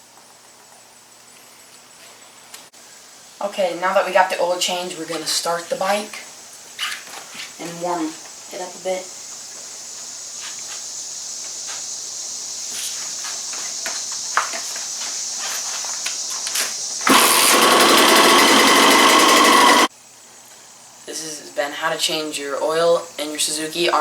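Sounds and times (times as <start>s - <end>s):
steady high hiss: 0.0s - 17.1s, 19.9s - 24.0s
dirt bike engine running: 17.0s - 19.9s.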